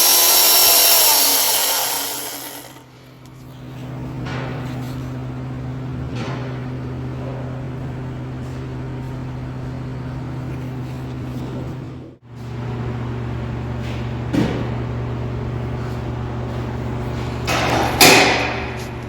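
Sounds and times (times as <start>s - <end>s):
machine motor humming: 0.0s - 2.9s.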